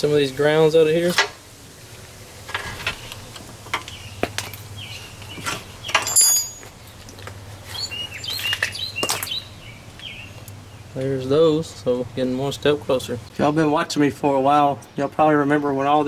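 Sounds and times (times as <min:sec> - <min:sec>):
birds chirping: 0:00.0 - 0:01.2, 0:01.8 - 0:16.0
ringing metal clink: 0:06.0 - 0:06.7.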